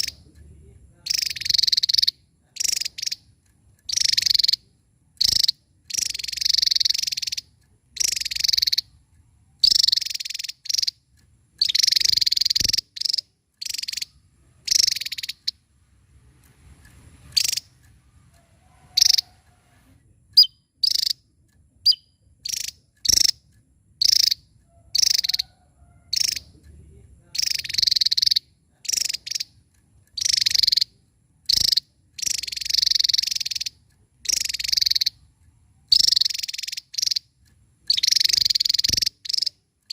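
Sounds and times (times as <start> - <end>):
bird singing buzzy notes: 11.6 - 15.6, 17.2 - 17.8, 20.4 - 21.2, 21.8 - 23.4, 37.9 - 39.6.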